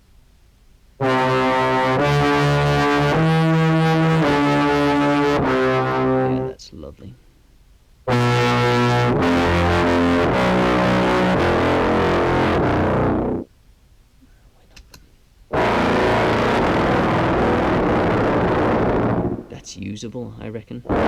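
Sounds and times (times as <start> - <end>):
distorted low clarinet tone: 1.0 - 6.6, 8.1 - 13.5, 15.5 - 19.6.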